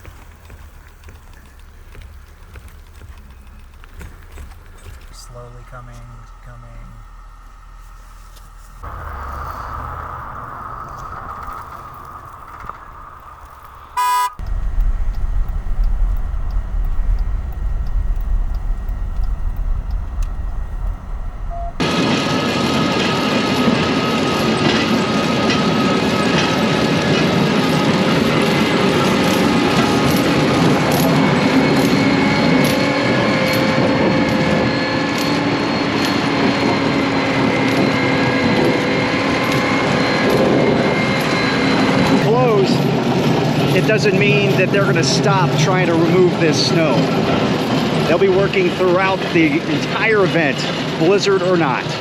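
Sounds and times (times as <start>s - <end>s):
large vehicle engine running: 0.0s - 52.0s
loud steady low rumble: 0.0s - 52.0s
loud rushing noise: 8.6s - 23.6s
faint regular ticking: 10.8s - 21.8s
vehicle horn toot: 14.0s - 14.7s.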